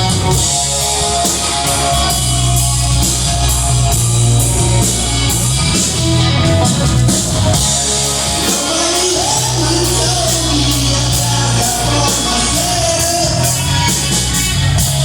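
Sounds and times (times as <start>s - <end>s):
bass guitar: 0.0s - 15.0s
drum beat with cymbals: 0.0s - 15.0s
electric guitar: 0.0s - 15.0s
person singing: 7.7s - 15.0s.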